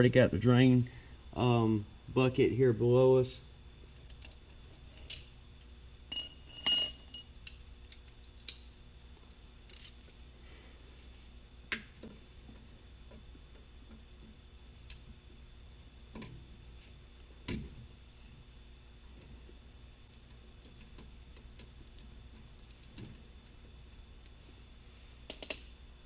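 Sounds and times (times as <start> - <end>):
metal hand tools clinking: 6.1 - 7.6, 25.2 - 25.9.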